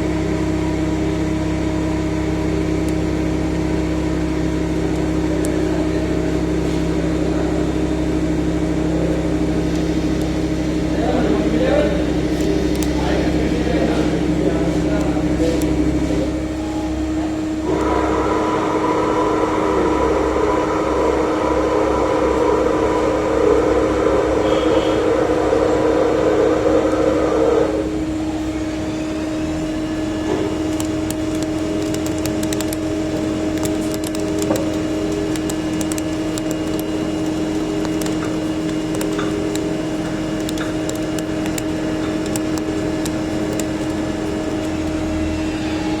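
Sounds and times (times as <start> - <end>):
lathe motor hum: 0.0 - 46.0
sharp ticks: 30.2 - 45.3.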